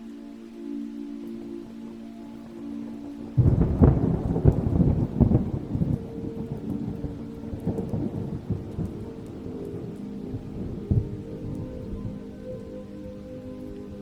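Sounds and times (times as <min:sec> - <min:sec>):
soft sustained music tones: 0:00.0 - 0:14.0
steady rain: 0:00.0 - 0:14.0
thunderclap rumbling: 0:03.3 - 0:14.0.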